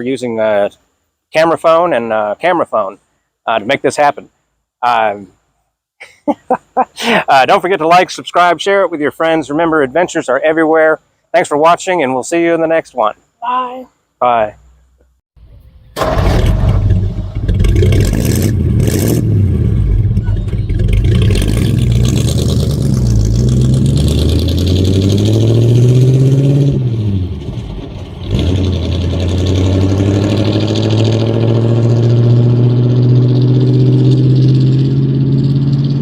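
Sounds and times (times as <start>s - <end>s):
truck engine pulling away: 16.0s - 36.0s.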